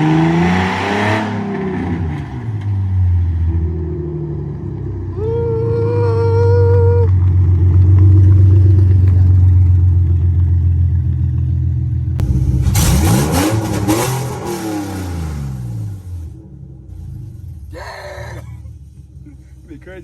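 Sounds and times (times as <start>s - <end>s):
low engine drone: 2.9s - 20.0s
engine revving with crackling: 6.7s - 16.4s.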